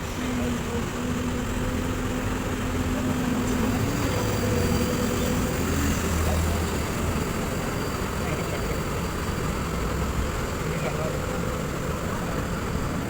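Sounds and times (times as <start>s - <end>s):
excavator diesel engine drone: 0.0s - 13.0s.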